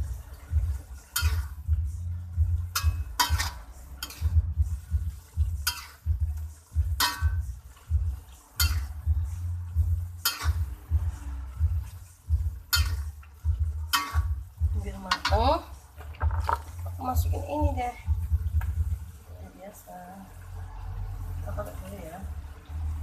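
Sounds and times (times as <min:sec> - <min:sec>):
spatula scraping a pan: 0:00.1 - 0:17.1.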